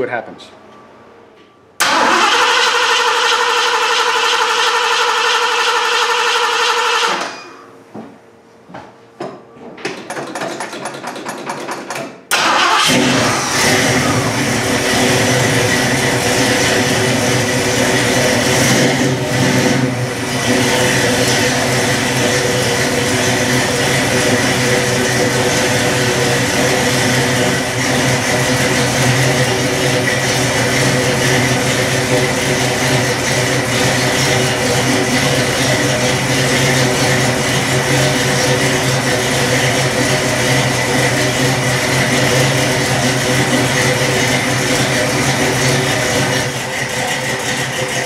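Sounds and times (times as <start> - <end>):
engine starter cranking: 1.8 - 7.5, 12.3 - 14.3
car engine running: 12.8 - 48.0.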